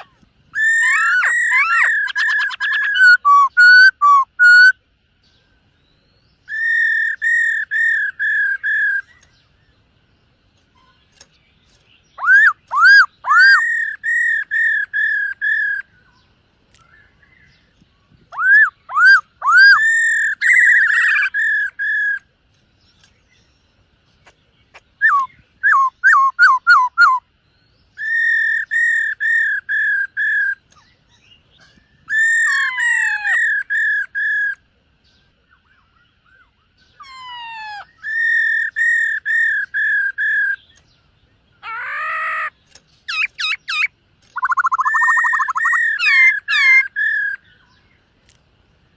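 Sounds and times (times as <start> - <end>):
bird singing whistled phrases: 0.0 - 4.8, 5.9 - 9.3, 12.1 - 16.2, 18.3 - 22.2, 25.0 - 27.3, 27.9 - 34.6, 35.6 - 40.8, 41.6 - 47.8.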